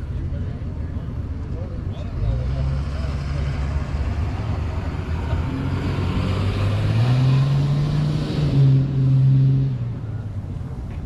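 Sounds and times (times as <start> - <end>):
car engine passing: 2.1 - 10.2.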